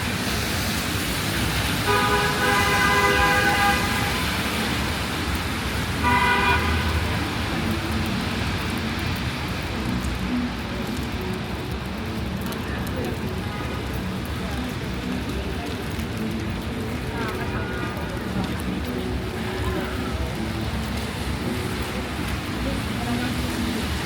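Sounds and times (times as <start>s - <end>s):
city traffic on wet streets: 0.0s - 24.0s
vehicle horn honking: 1.9s - 4.2s, 6.0s - 7.0s.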